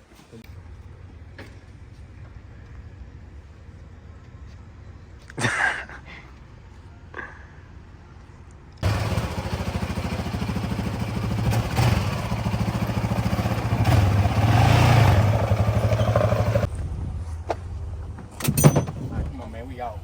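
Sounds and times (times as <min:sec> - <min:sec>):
dirt bike engine running: 0:08.8 - 0:16.7.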